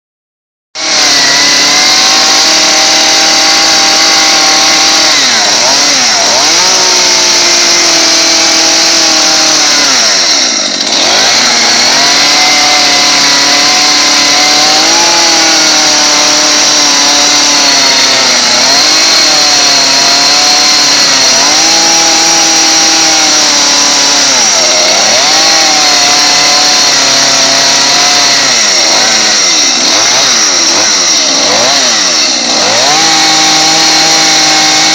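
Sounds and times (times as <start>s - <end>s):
chainsaw cutting at high revs: 0.8s - 34.9s.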